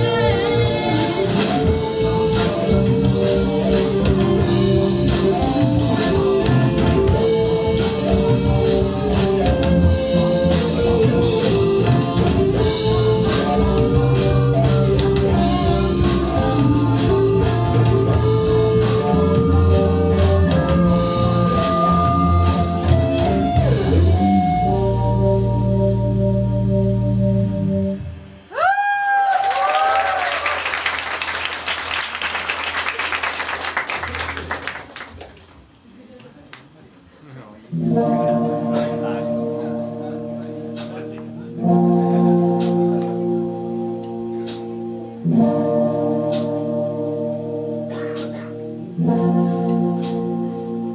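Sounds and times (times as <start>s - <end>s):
drum kit: 0.0s - 27.6s, 40.4s - 43.4s, 44.0s - 46.7s, 47.9s - 50.8s
bass guitar: 0.0s - 28.8s, 37.7s - 50.9s
electric guitar: 0.0s - 30.2s, 37.7s - 50.9s.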